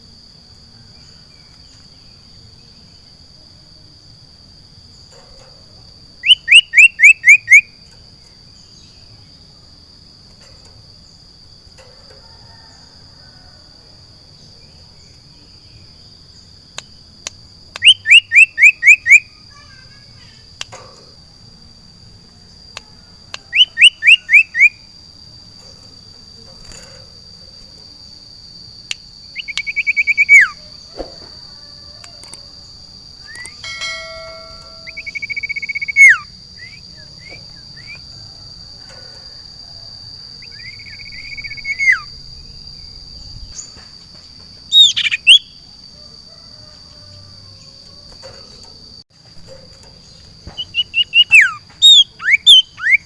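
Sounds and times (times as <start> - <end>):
songbird whistled calls: 6.2 - 7.8, 17.7 - 19.4, 23.3 - 24.8, 28.9 - 30.6, 33.2 - 38.0, 40.4 - 42.1, 44.7 - 45.6, 50.5 - 53.0
faint high-pitched tone: 33.3 - 36.2.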